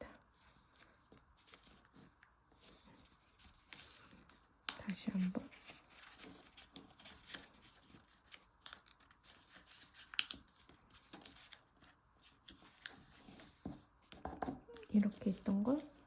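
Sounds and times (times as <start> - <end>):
paper rustling and crinkling: 0.1 - 16.0.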